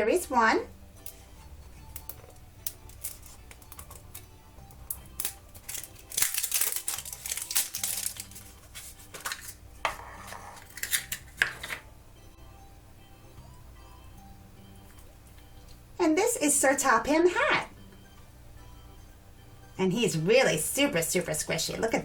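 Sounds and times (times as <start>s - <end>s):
soft background music: 0.0s - 22.0s
wrapper crinkling: 1.9s - 9.6s, 10.2s - 11.4s.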